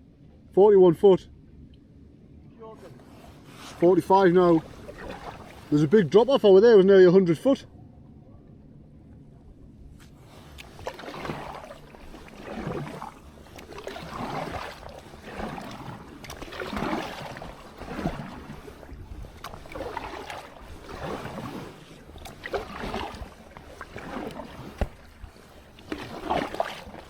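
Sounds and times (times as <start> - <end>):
kayak paddle splashing water: 2.8 - 6.3, 10.0 - 27.0.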